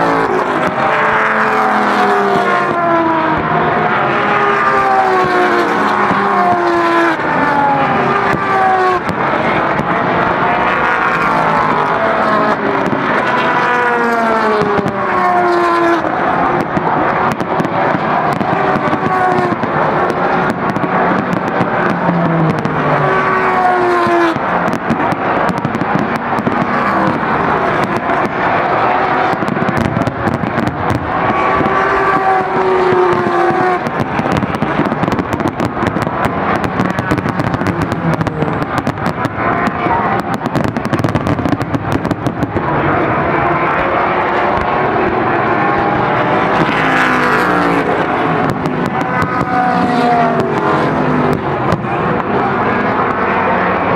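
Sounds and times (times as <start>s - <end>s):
fireworks bursting and crackling: 0.0s - 53.9s
racing cars passing: 0.0s - 53.9s.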